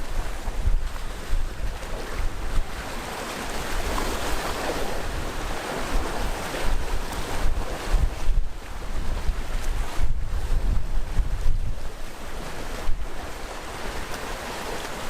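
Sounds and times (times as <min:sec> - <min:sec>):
wind buffeting microphone: 0:00.0 - 0:14.4
sea waves breaking on shore: 0:00.0 - 0:15.0.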